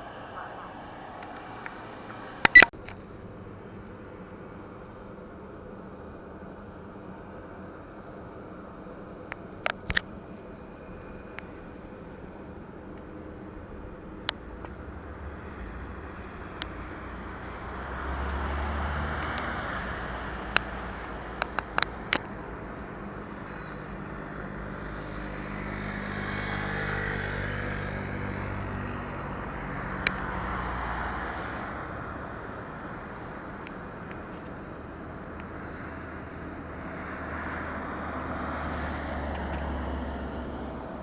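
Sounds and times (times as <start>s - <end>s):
steady engine hum: 0.0s - 41.0s
vehicles passing by: 0.0s - 41.0s
sharp clicks: 1.1s - 3.0s, 19.1s - 23.0s.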